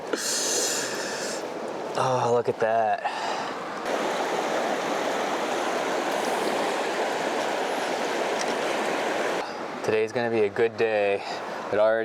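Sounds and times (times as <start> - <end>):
river water rushing: 3.3 - 9.5.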